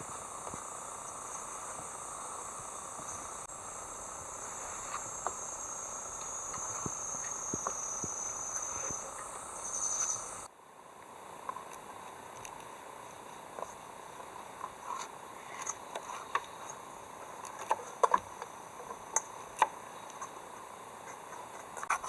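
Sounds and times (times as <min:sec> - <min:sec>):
insects chirring: 0:00.0 - 0:22.0
faint ticks: 0:04.2 - 0:16.8.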